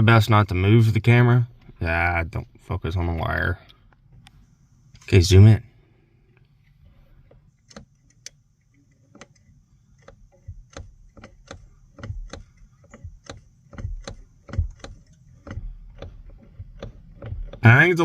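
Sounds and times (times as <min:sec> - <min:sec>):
metallic clicks and knocks: 0:07.3 - 0:17.8.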